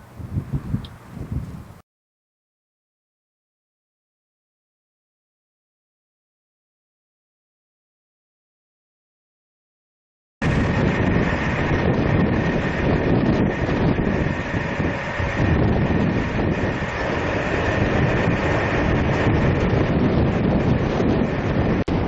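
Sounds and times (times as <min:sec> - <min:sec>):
wind buffeting microphone: 0:00.0 - 0:01.8, 0:10.4 - 0:22.0.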